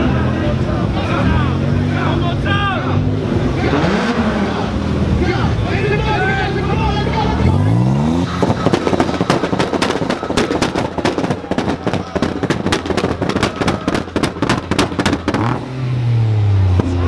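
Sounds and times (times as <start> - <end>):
exhaust pops and bangs: 3.2 - 15.9.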